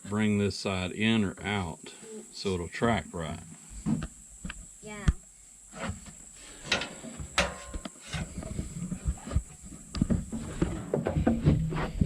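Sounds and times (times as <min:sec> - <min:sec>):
handling noise: 0:05.8 - 0:12.0.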